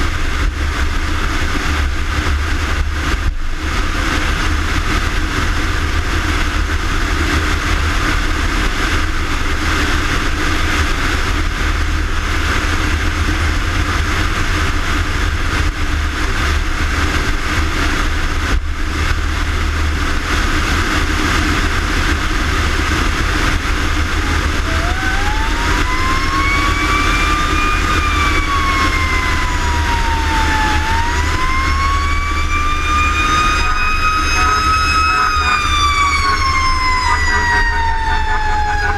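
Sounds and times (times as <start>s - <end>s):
fire engine running: 0.0s - 38.9s
siren wailing: 23.8s - 38.9s.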